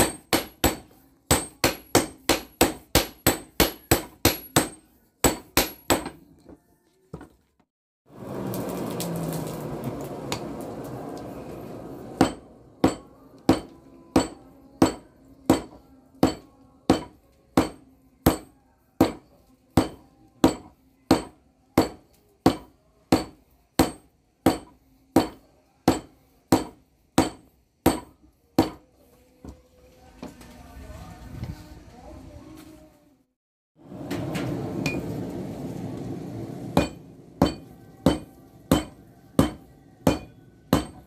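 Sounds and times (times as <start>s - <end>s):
hammer striking steel on anvil: 0.0s - 6.3s, 12.2s - 28.8s, 36.8s - 41.0s.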